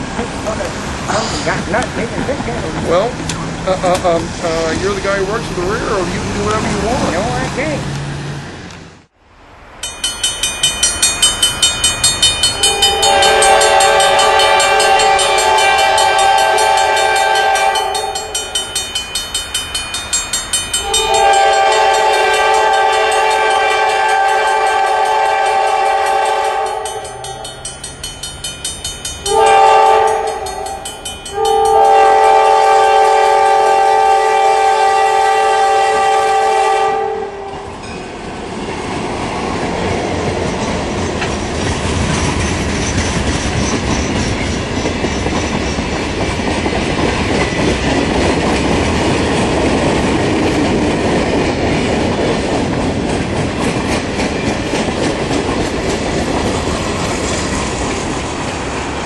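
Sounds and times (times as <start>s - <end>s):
train wheels clacking on rails: 9.8s - 34.0s, 37.6s - 59.0s
locomotive air horn blasts: 12.6s - 18.6s, 20.8s - 27.2s, 29.2s - 37.6s.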